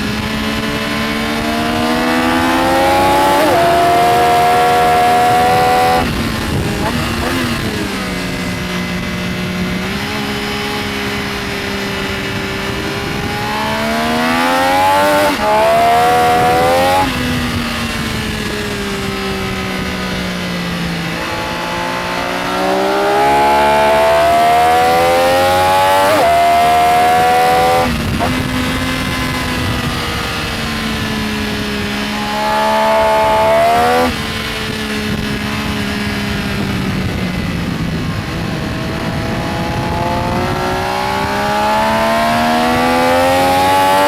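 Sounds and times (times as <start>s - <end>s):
motorcycle engine accelerating: 0.0s - 44.0s.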